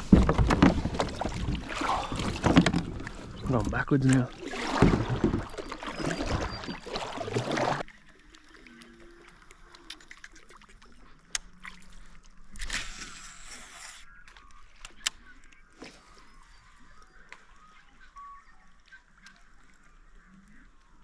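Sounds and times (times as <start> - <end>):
water splashing against kayak hull: 0.0 - 13.0.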